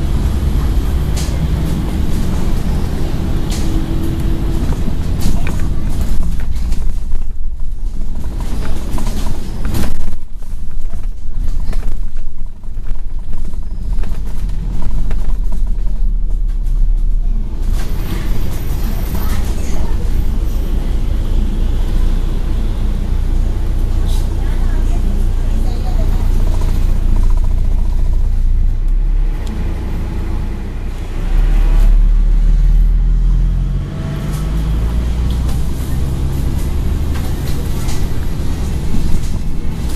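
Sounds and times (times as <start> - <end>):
bus engine rumble: 0.0 - 39.9.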